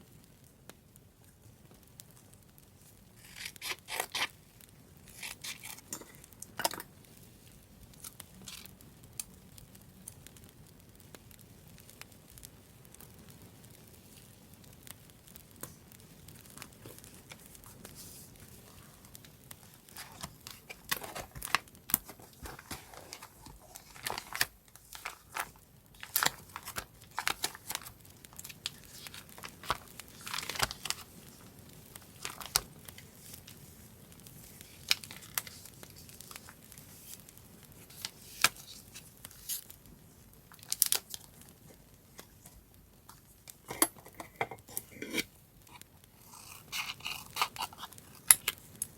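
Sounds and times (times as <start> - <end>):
paper crinkling and tearing: 3.2 - 4.4, 5.1 - 6.3, 8.0 - 8.7, 19.8 - 33.7, 34.4 - 39.8, 40.5 - 43.8, 44.7 - 48.9.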